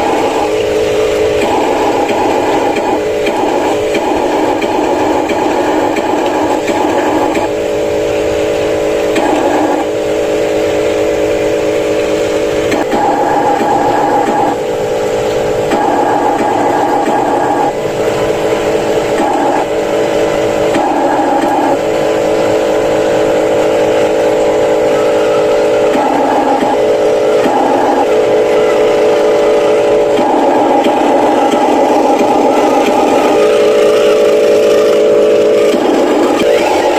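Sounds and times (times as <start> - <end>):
model motors whining: 0.0 - 36.9.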